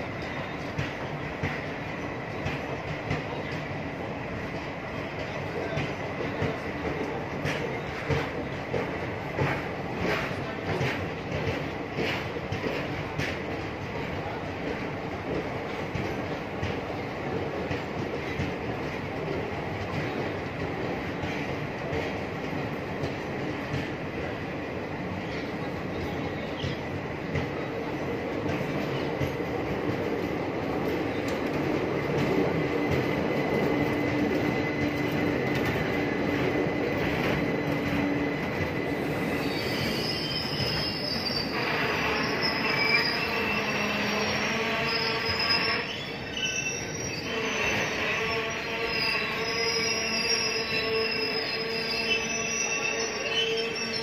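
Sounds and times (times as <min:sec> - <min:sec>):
train wheels rumbling on track: 0:00.0 - 0:54.0
wheels squealing: 0:37.0 - 0:54.0.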